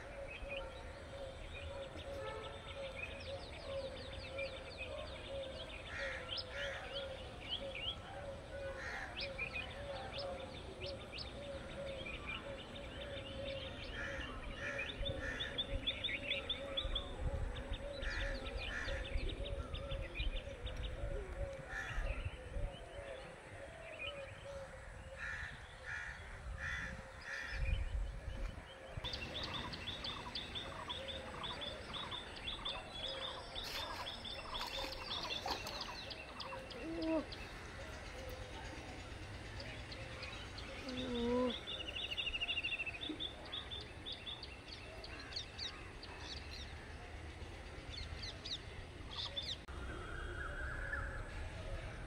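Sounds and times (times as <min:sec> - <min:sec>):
birds chirping and calling: 0:00.0 - 0:23.1, 0:23.7 - 0:52.0.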